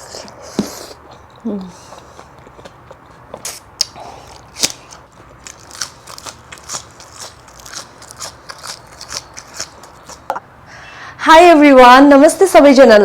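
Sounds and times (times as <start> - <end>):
crisp food crunching: 4.2 - 10.3.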